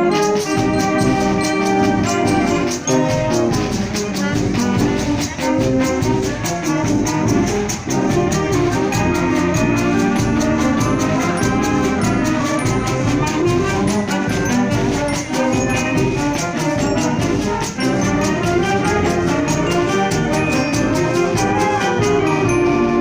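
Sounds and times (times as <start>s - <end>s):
steady percussion beat: 0.0s - 23.0s
trumpets and trombones melody: 0.0s - 23.0s
wind band playing: 0.0s - 23.0s.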